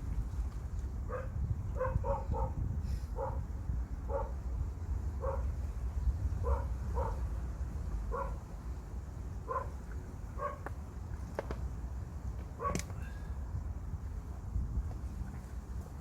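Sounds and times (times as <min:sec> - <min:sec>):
steady low rumble: 0:00.0 - 0:16.0
dog barking: 0:01.1 - 0:02.6, 0:03.2 - 0:03.4, 0:04.1 - 0:04.4, 0:05.2 - 0:05.5, 0:06.4 - 0:07.2, 0:08.1 - 0:08.4, 0:09.5 - 0:09.8, 0:10.4 - 0:10.6.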